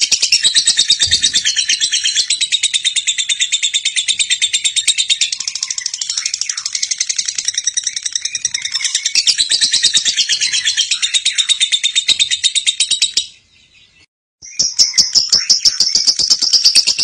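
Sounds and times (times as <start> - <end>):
bird chattering trill: 0.0 - 13.3.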